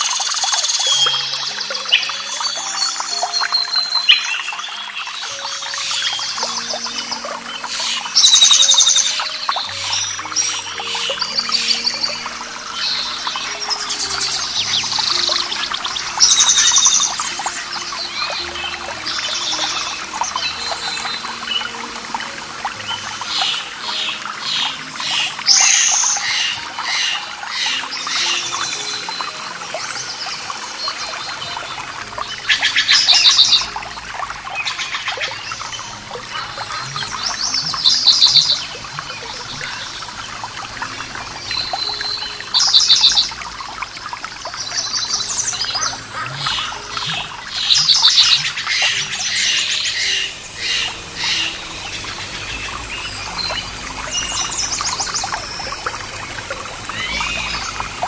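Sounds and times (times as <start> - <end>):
running water: 0.0 - 58.0
songbirds singing and chirping: 0.0 - 58.0
loud rapid bird trill: 0.8 - 21.7, 22.8 - 29.2, 45.1 - 58.0.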